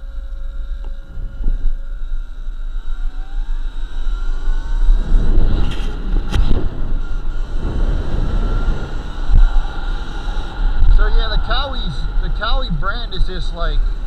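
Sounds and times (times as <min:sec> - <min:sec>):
electric motor whine: 0:00.0 - 0:14.0
rough riding noise: 0:00.0 - 0:14.0
wind buffeting microphone: 0:02.9 - 0:14.0.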